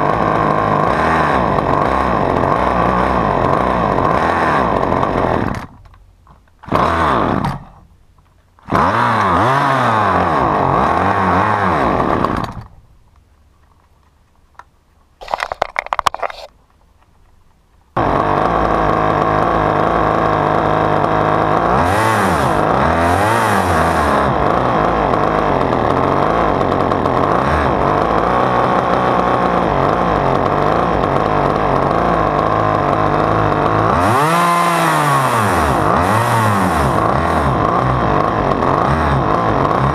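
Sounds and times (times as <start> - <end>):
chainsaw engine sputtering and running: 0.0 - 6.0, 6.6 - 7.9, 8.6 - 12.8, 18.0 - 39.9.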